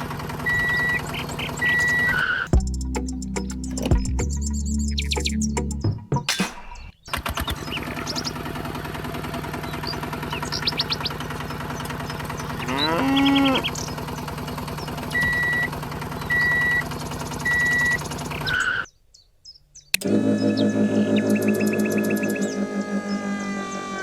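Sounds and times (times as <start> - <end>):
cow mooing: 12.6 - 13.7, 20.3 - 24.0
small electric motor humming: 20.0 - 24.0.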